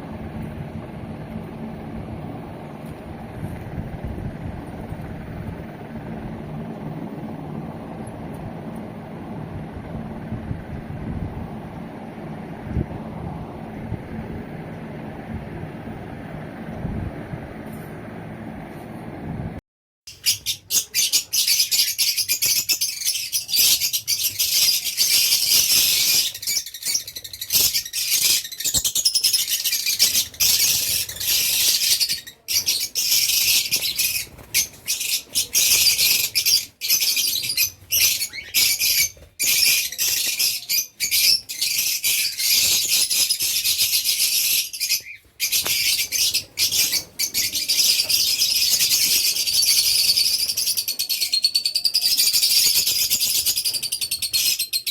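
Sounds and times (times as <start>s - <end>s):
lovebirds chattering and chirping: 20.2s - 54.9s.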